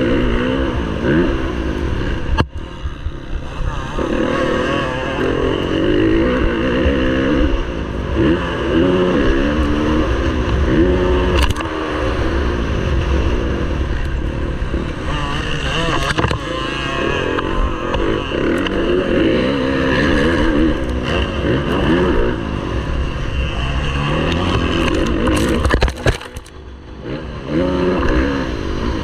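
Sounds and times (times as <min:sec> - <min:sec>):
motocross bike engine revving: 0:00.0 - 0:29.0.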